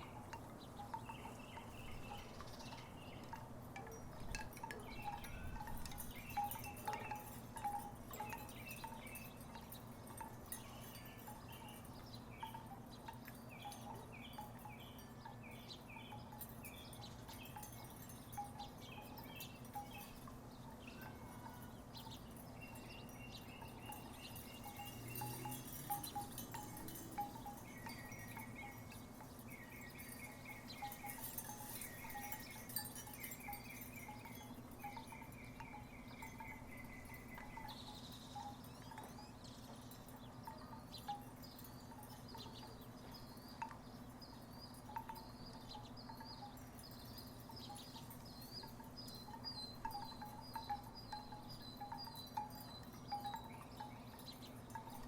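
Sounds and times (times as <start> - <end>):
wooden wind chimes clacking: 0.0 - 55.0.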